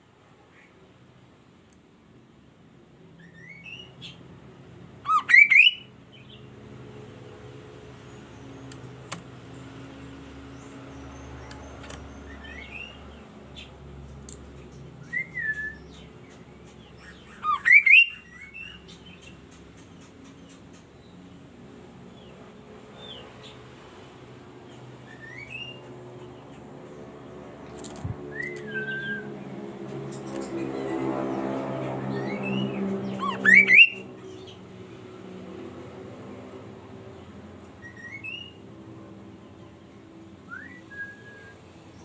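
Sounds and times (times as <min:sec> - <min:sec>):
bird whistled calls: 0:05.1 - 0:05.9, 0:17.3 - 0:18.8, 0:28.3 - 0:29.3, 0:33.2 - 0:34.0, 0:37.8 - 0:38.6, 0:40.5 - 0:41.6.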